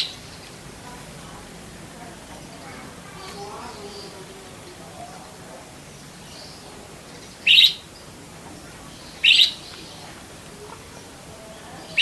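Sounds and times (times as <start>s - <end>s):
budgerigar chirps: 7.4s - 7.8s, 9.2s - 9.6s.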